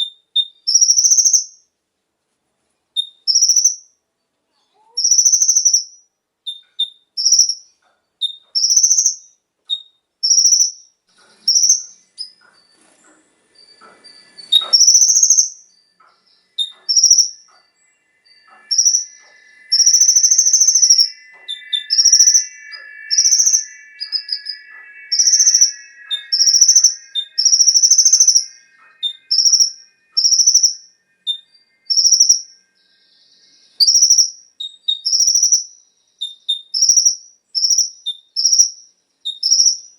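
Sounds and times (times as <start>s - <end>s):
rattling bird trill: 6.5s - 32.6s
sunbird calling: 6.5s - 39.9s.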